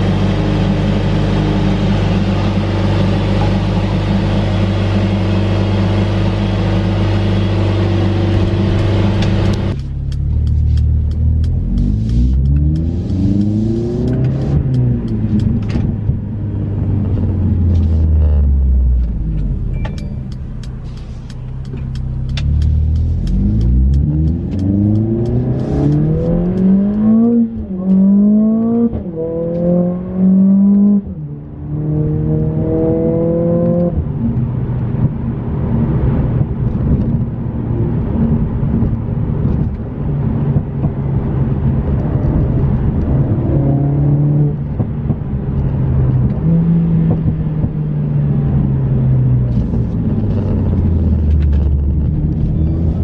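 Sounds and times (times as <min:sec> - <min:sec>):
car engine accelerating hard: 0:00.0 - 0:19.7, 0:20.6 - 0:53.0
sharp ticks: 0:09.7 - 0:15.6, 0:19.4 - 0:27.4.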